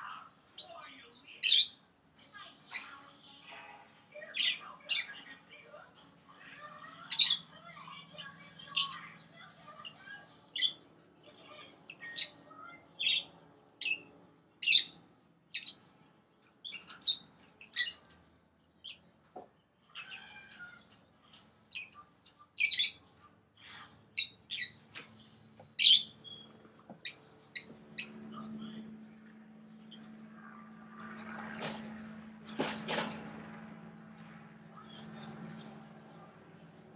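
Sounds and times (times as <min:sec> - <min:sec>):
parrots chirping: 0:00.0 - 0:03.4, 0:04.2 - 0:15.8, 0:16.6 - 0:18.2, 0:18.8 - 0:23.0, 0:24.2 - 0:28.8.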